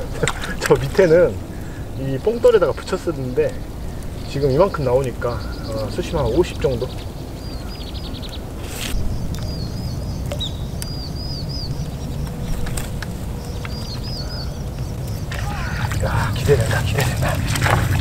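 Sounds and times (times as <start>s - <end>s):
small bird singing: 0.0s - 18.0s
steady low rumble: 0.0s - 18.0s
rapid high bird trill: 0.8s - 18.0s.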